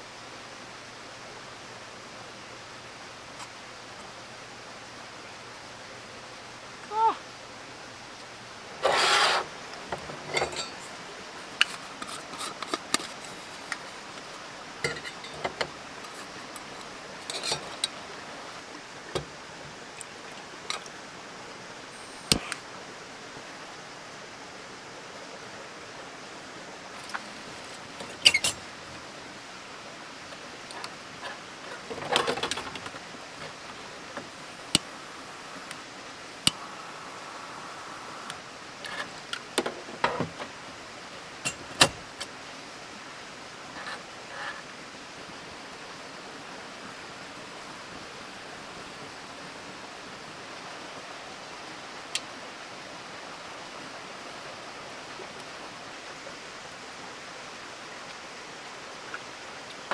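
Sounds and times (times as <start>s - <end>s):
steady low hiss: 0.0s - 59.9s
camp gear clinking and clattering: 8.8s - 19.9s, 26.9s - 28.8s, 30.6s - 34.9s, 41.4s - 42.4s.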